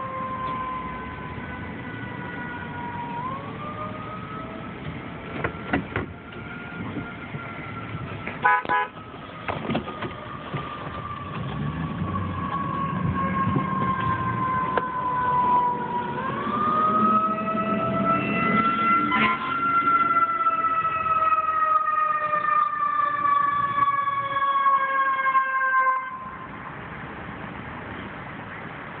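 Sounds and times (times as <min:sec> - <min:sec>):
emergency vehicle siren wailing: 0:00.0 - 0:26.8
traffic noise: 0:00.0 - 0:29.0
horn blast: 0:08.4 - 0:09.0, 0:19.0 - 0:19.6.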